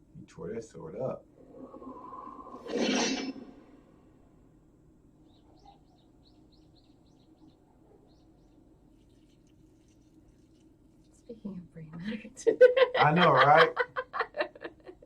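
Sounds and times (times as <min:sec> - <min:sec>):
low steady hum: 0:00.0 - 0:15.0
faint high bird chirps: 0:05.2 - 0:11.4.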